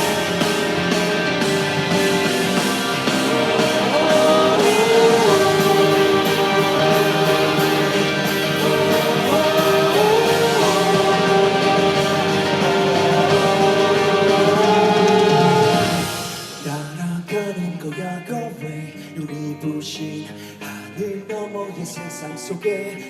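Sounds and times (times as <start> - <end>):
rock band playing: 0.0 - 17.6
guitar bending long notes: 0.0 - 17.8.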